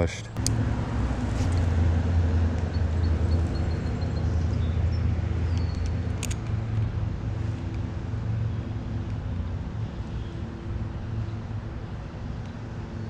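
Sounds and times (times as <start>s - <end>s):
low engine hum: 0.2s - 13.0s
light clicks: 5.5s - 6.9s.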